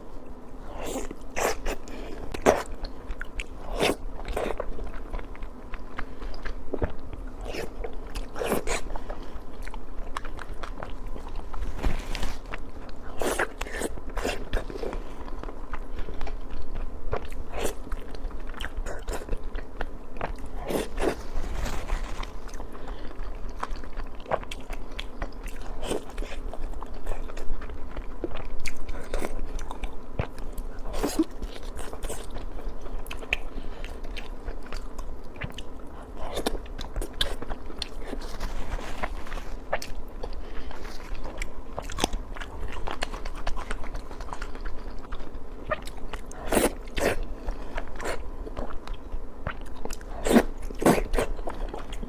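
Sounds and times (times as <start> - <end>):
person chewing: 0.6 - 52.0.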